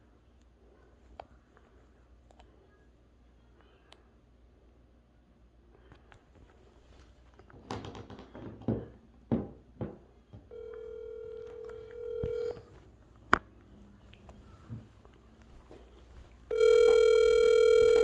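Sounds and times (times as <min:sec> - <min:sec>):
phone call tone: 0:10.5 - 0:12.8, 0:16.5 - 0:18.0.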